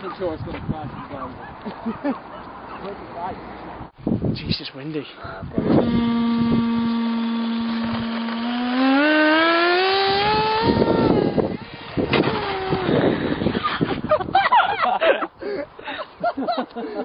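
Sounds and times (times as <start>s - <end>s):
wind noise: 0.0s - 1.7s, 3.7s - 8.6s, 9.8s - 15.8s
small electric motor whining: 5.6s - 13.4s.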